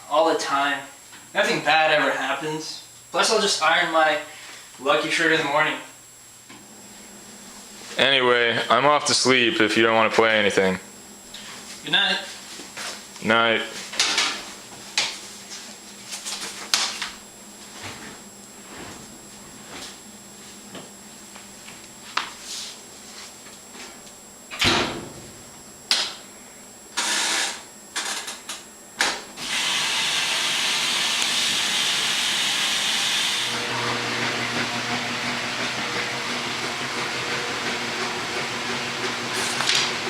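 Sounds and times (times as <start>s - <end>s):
laundry machine running hum: 0.0s - 40.0s
knocks and clicks of laundry machine: 24.5s - 26.2s
laundry machine hissing: 24.5s - 40.0s.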